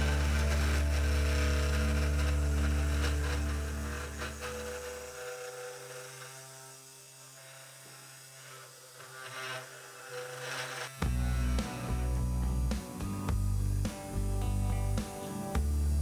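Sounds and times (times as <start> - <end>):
louder low hum: 0.0 - 5.2, 11.0 - 16.0
cnc router motor whining: 0.0 - 16.0.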